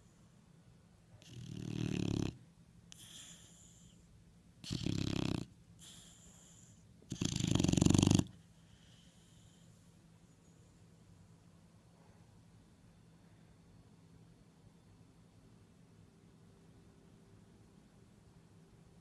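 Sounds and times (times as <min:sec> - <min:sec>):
dog snoring loudly: 0:01.2 - 0:02.4, 0:04.6 - 0:09.5.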